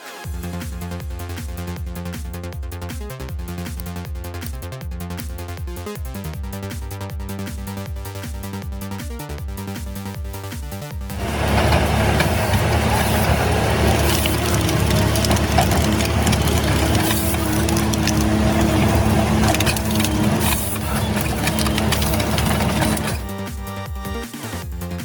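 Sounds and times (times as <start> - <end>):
heavy machine engine under load: 11.1 - 23.3
wood crunching and cracking: 11.1 - 23.3.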